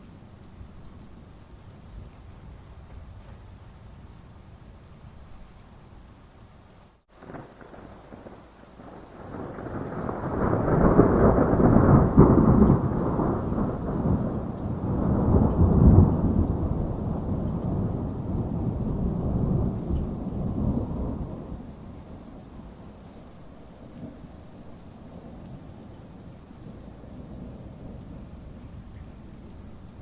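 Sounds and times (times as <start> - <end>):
steady rain: 0.0 - 30.0
rolling thunder: 7.2 - 23.0.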